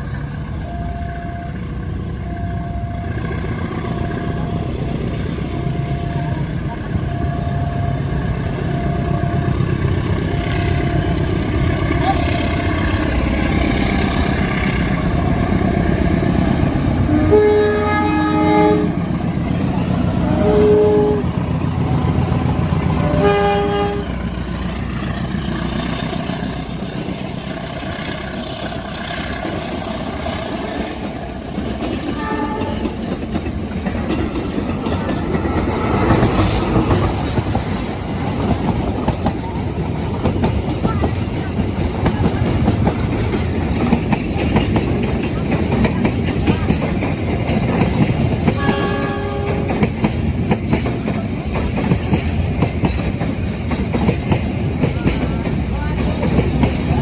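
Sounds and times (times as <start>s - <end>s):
train rumble and wheel clatter: 0.0s - 57.0s
train horn blasts: 0.5s - 13.2s, 14.0s - 19.3s, 20.0s - 24.5s, 32.0s - 33.0s, 48.5s - 49.9s.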